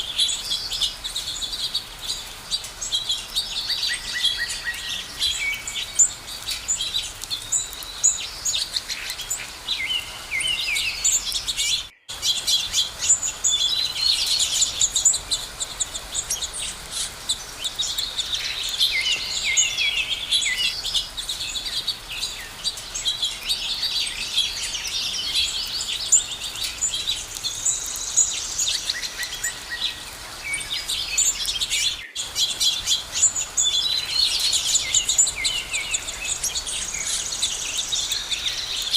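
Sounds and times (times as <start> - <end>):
songbirds chorus: 0.0 - 38.9.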